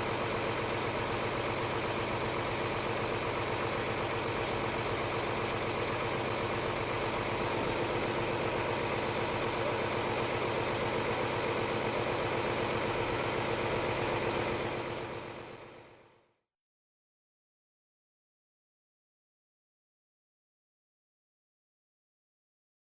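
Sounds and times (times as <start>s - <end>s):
diesel engine idling: 0.0s - 16.1s.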